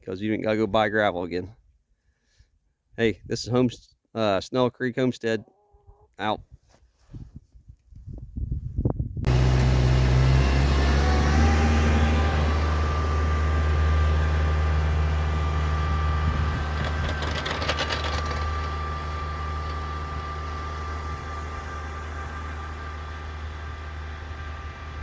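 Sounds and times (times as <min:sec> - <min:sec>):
engine droning: 0:09.3 - 0:25.0
rattling: 0:16.0 - 0:19.9.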